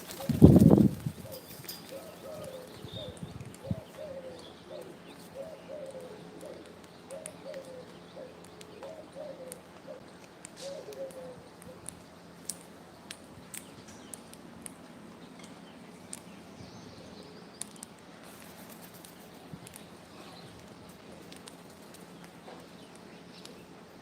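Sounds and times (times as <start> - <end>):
pigeon cooing: 0.0 - 10.0, 10.6 - 11.9.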